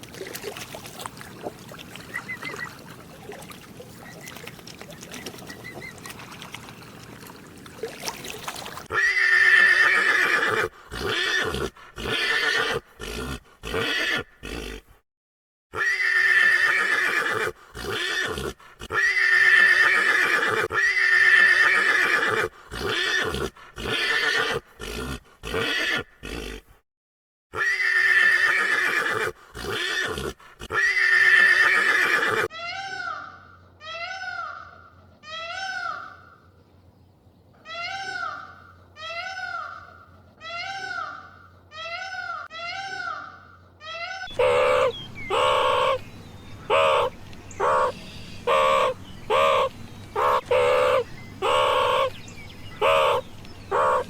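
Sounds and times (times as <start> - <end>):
large animal calling: 37.7 - 54.0.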